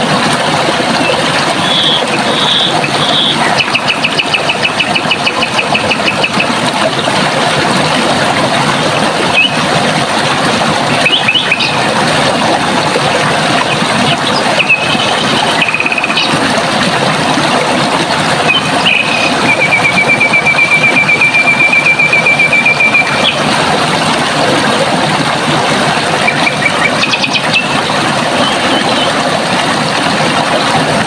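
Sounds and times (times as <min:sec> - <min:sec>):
running water: 0:00.0 - 0:31.0
bird trill: 0:18.5 - 0:23.4.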